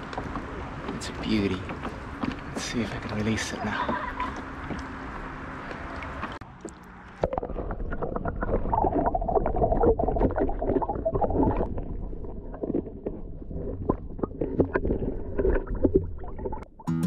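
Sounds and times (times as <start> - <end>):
small underwater clicks and knocks: 5.6 - 16.7.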